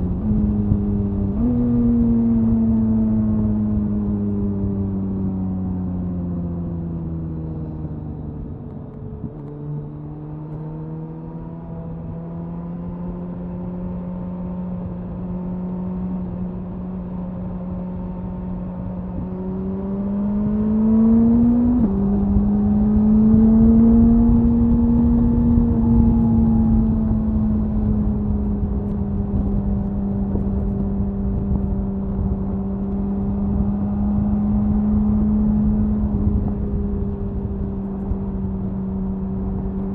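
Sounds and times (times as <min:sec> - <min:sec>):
motorcycle exhaust cruising: 0:00.0 - 0:39.9
wind rumbling: 0:18.5 - 0:39.9.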